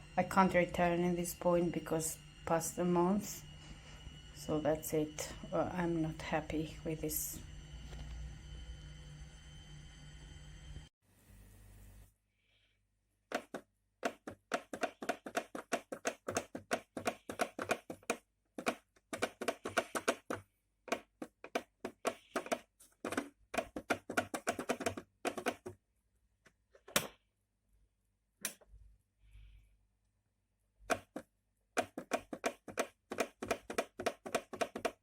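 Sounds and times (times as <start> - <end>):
rapid sharp clicks: 13.3 - 25.7, 31.8 - 35.0.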